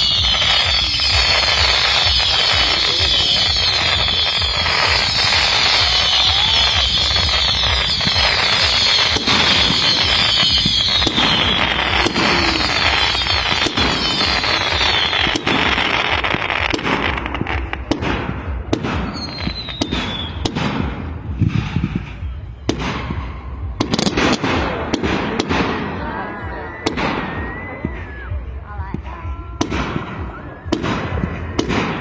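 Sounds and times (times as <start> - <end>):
falling whistle: 0.0 - 16.5
fireworks bangs: 0.0 - 32.0
fireworks crackling: 0.0 - 32.0.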